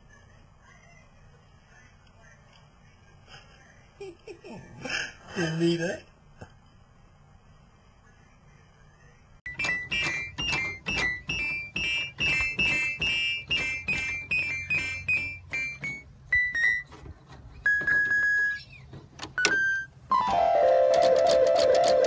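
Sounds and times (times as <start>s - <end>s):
electronic keyboard notes: 9.5s - 16.8s, 19.4s - 22.0s.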